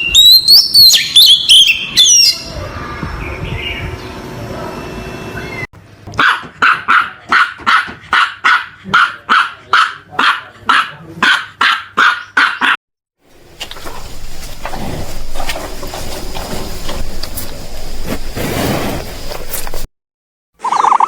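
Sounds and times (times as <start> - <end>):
dog barking: 6.2 - 12.8.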